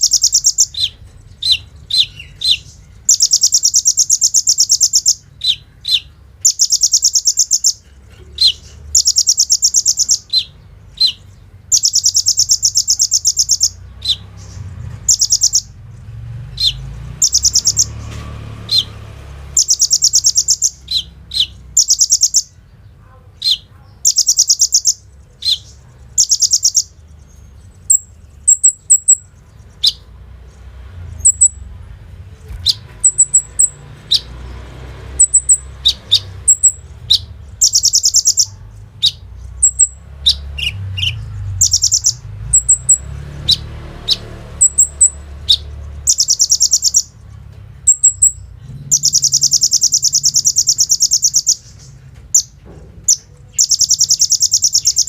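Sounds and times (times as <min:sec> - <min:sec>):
bird rattling trills: 0:16.7 - 0:22.5
bird single chirps: 0:19.6 - 0:22.6, 0:23.4 - 0:30.0, 0:32.5 - 0:34.3, 0:35.2 - 0:47.1, 0:47.9 - 0:55.0.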